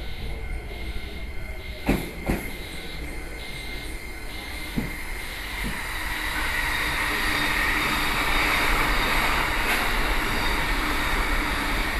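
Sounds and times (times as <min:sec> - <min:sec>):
electric train running on rails: 0:00.0 - 0:11.9.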